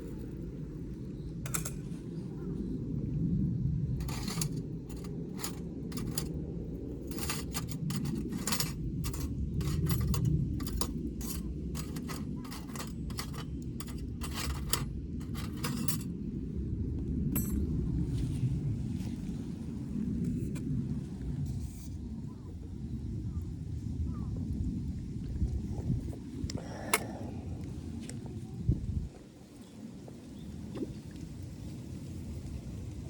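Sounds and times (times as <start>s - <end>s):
steady low rumble: 0.0s - 29.3s
utensils clinking and scraping: 4.0s - 6.3s, 7.0s - 16.1s.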